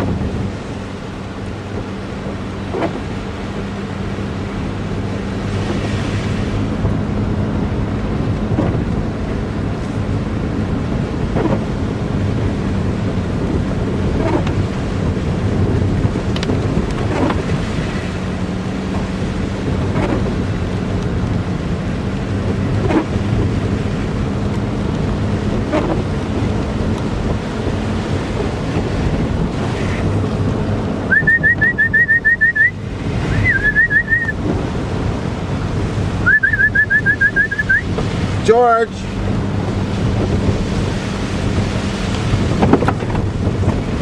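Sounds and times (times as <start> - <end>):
road and wind noise: 0.0 - 44.0
person whistling for dog: 31.1 - 34.4, 36.2 - 37.9.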